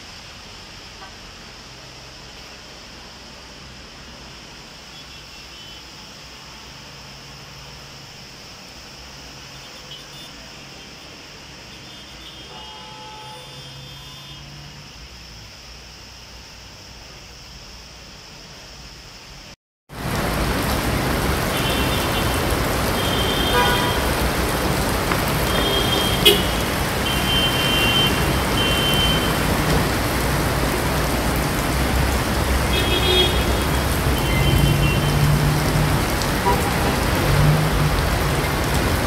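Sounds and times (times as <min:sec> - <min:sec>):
heavy rain pouring: 0:00.0 - 0:39.0
traffic passing through water: 0:00.0 - 0:39.0
car horn toots: 0:11.9 - 0:14.5, 0:23.0 - 0:24.3, 0:25.4 - 0:29.6, 0:32.7 - 0:35.2, 0:36.4 - 0:37.0.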